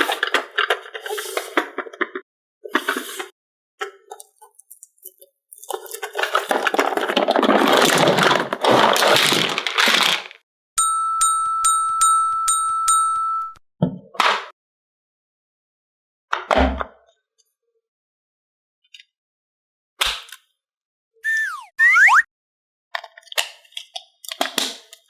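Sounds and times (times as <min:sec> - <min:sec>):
high dings over a held tone: 0:10.8 - 0:13.6.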